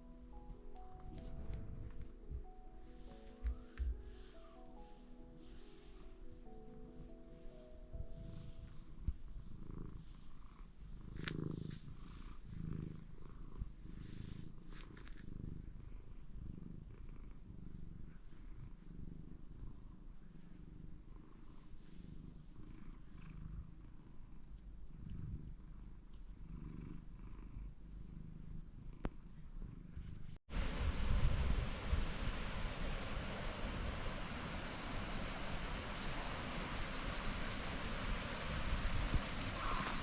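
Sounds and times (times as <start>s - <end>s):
cat purring: 0.0s - 40.0s.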